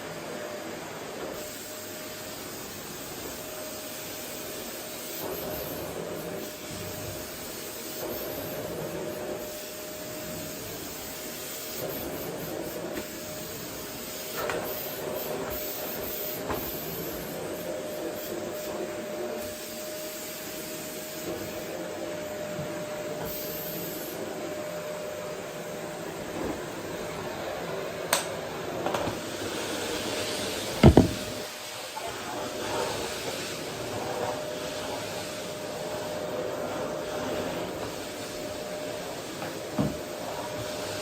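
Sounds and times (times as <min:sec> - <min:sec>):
vacuum cleaner running: 0:00.0 - 0:41.0
faint light knocks: 0:30.8 - 0:31.4.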